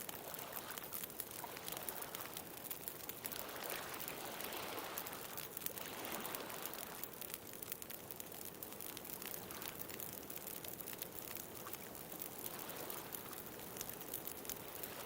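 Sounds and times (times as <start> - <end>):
bonfire crackling and popping: 0.0 - 15.0
ocean waves: 3.2 - 7.0, 11.8 - 15.0.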